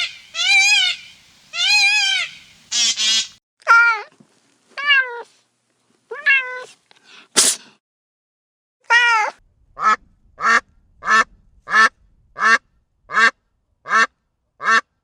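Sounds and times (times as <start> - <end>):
duck quacking: 0.0 - 3.4, 13.9 - 14.9.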